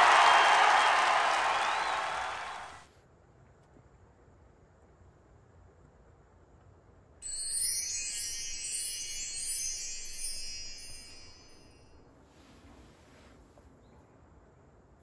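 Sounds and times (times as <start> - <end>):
sparkling chime jingle: 7.2 - 12.0.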